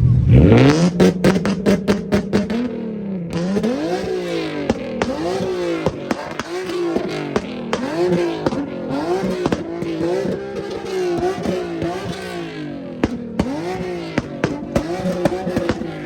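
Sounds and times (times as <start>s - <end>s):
car engine revving: 0.0s - 16.0s
sharp cracks: 3.3s - 12.4s, 13.0s - 16.0s.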